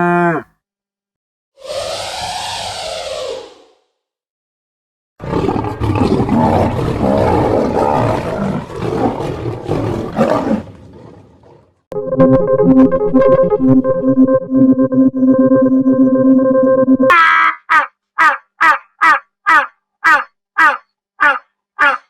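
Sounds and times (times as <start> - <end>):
big cat roaring: 0.0 - 0.5, 5.2 - 11.8.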